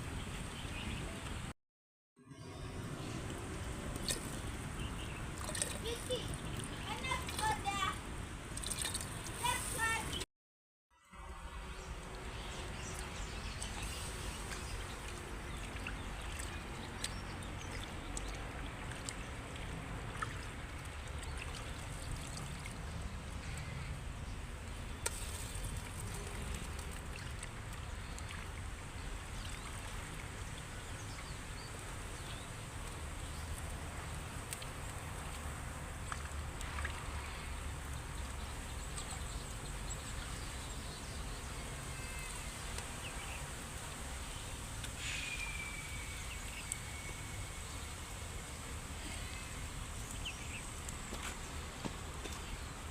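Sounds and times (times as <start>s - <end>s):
light rain ticks: 32.8s - 37.0s, 42.7s - 43.0s.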